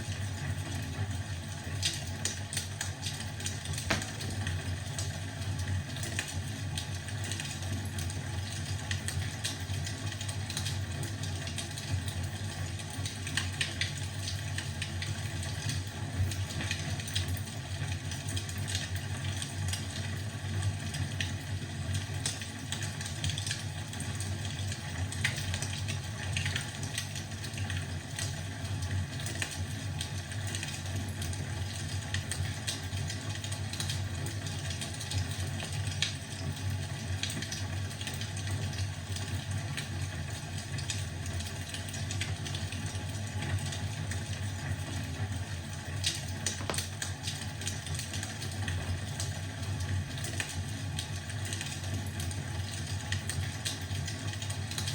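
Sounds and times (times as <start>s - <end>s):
wood fire crackling: 1.4s - 7.6s, 45.3s - 51.8s.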